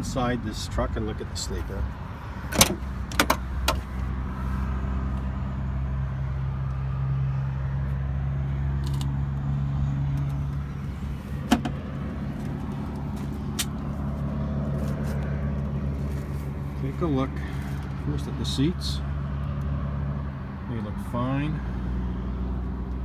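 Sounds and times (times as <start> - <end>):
sharp knocks and clicks: 2.5 - 3.8.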